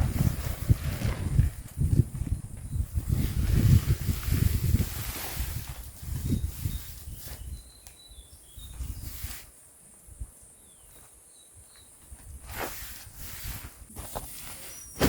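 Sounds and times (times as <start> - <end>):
rustling: 0.0 - 7.7, 12.2 - 15.0
insect hiss: 0.1 - 15.0.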